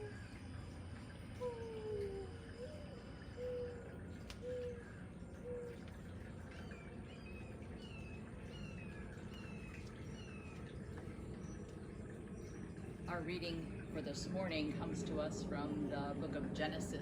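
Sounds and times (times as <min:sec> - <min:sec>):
low bird cooing: 0:00.0 - 0:13.1.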